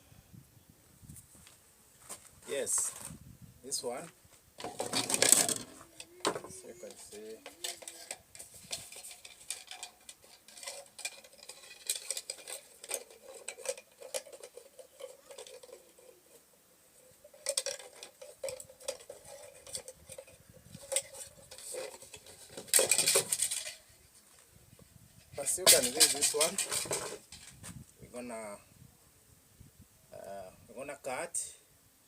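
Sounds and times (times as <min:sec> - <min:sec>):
scraping rustle: 0:01.1 - 0:27.9
plumbing pipes clattering: 0:04.6 - 0:16.2, 0:17.3 - 0:23.8.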